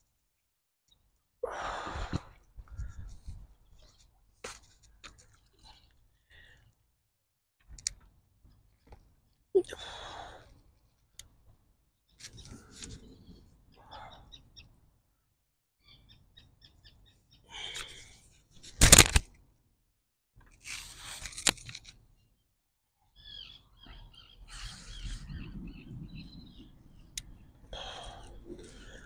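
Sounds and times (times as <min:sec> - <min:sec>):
small birds chirping: 0:12.0 - 0:14.9, 0:15.8 - 0:18.2, 0:22.2 - 0:29.0
rustling and handling noise: 0:18.6 - 0:19.3, 0:20.4 - 0:22.0.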